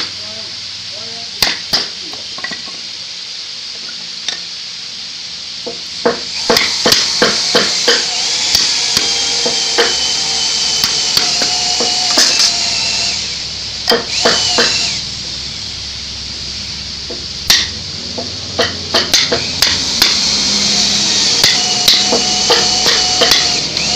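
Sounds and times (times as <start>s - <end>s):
high hiss: 0.0s - 23.9s
hammer striking wood: 5.7s - 8.1s, 13.9s - 14.9s, 17.1s - 20.2s, 21.4s - 23.6s.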